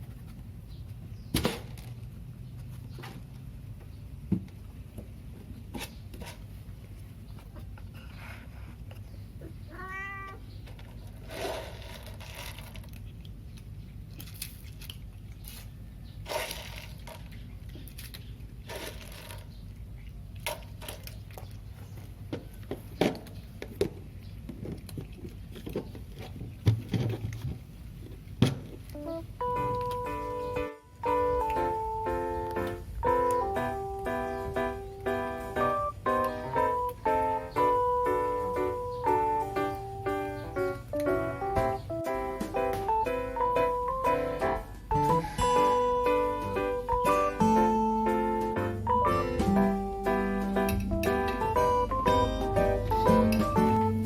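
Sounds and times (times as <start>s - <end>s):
cat meowing: 9.4s - 10.4s.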